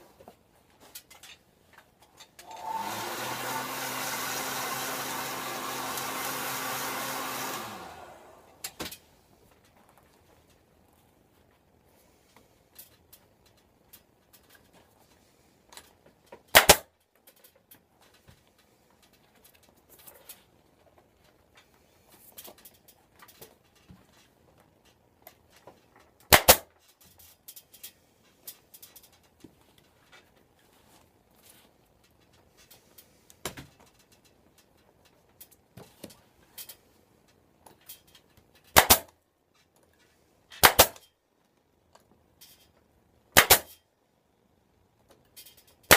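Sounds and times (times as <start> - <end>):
staple gun firing: 16.5 - 16.8, 26.3 - 26.6, 38.7 - 39.1, 40.6 - 41.0, 43.4 - 43.7.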